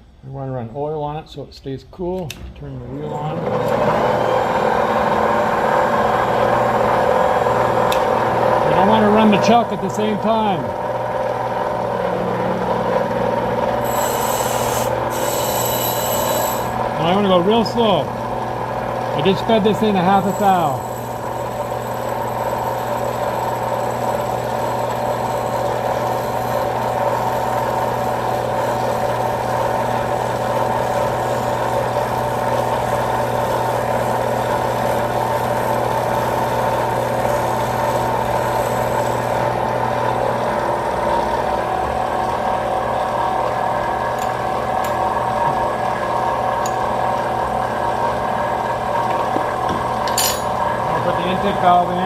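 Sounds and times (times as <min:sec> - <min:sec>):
grinding wheel running: 0:11.2 - 0:41.7
high whine: 0:11.7 - 0:18.2, 0:19.2 - 0:27.4.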